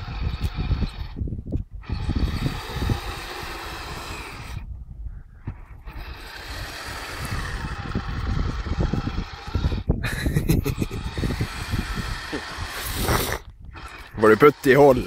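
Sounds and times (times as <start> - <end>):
electric motor and tracks running: 0.0 - 4.7, 5.4 - 15.0.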